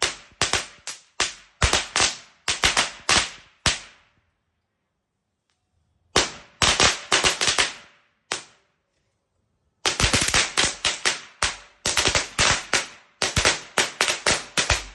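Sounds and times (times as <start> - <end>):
firecrackers banging: 0.0 - 4.1, 6.1 - 8.6, 9.8 - 14.9.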